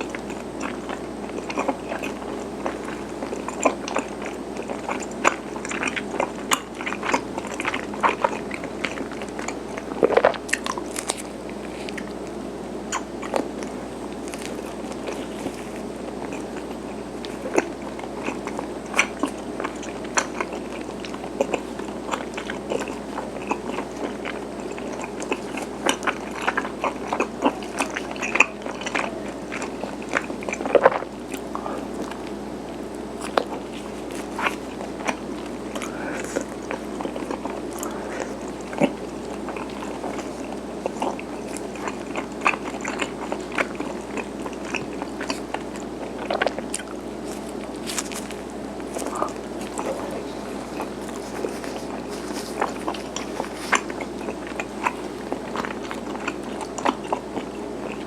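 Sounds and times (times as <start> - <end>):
wet mouth clicks: 0.0 - 32.4
person chewing: 0.0 - 58.0.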